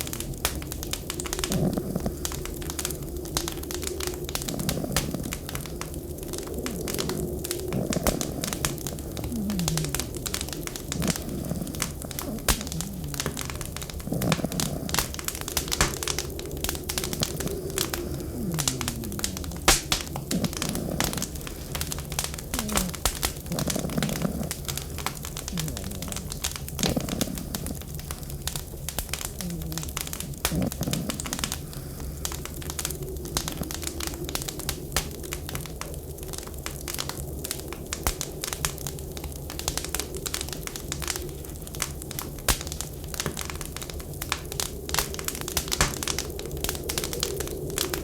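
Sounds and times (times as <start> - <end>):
blizzard wind rushing: 0.0 - 36.6
wood fire crackling: 0.0 - 48.0.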